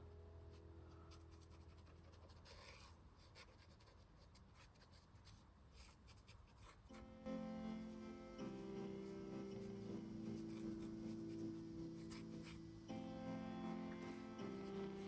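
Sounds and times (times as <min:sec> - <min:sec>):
soft background music: 0:00.0 - 0:03.5, 0:06.8 - 0:15.0
marker scratching on paper: 0:01.5 - 0:06.8.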